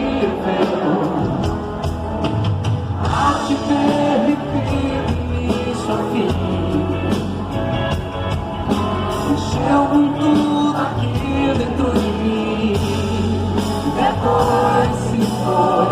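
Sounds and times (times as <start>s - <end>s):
live pop-rock band: 0.0s - 15.9s
person singing: 3.0s - 7.4s, 9.1s - 15.9s.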